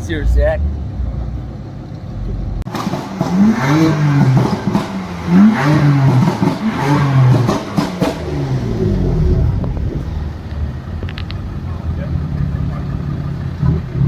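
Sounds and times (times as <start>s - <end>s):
car engine revving hard: 2.7s - 10.9s.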